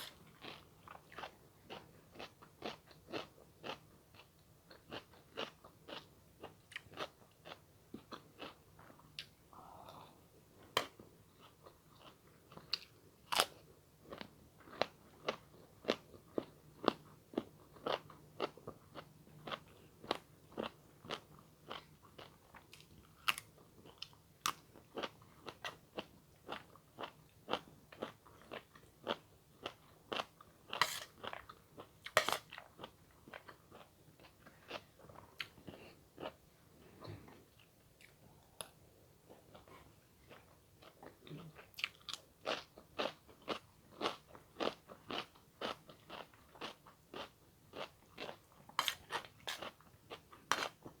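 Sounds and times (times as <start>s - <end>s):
chewing and crunching: 39.3s - 51.0s.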